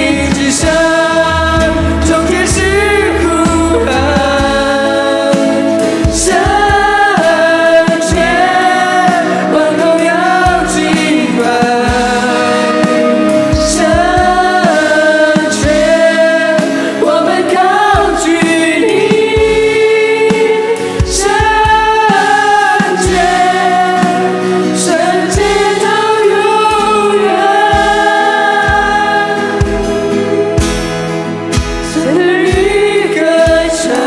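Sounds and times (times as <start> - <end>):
band playing: 0.0 - 34.0
choir singing worship song: 0.0 - 34.0
cymbals: 0.0 - 34.0
drum beat: 0.0 - 34.0.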